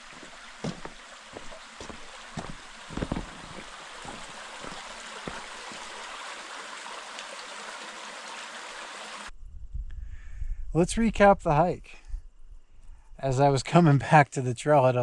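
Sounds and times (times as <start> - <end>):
soft thumps: 0.0 - 6.0
creek water running over rocks: 0.0 - 9.3.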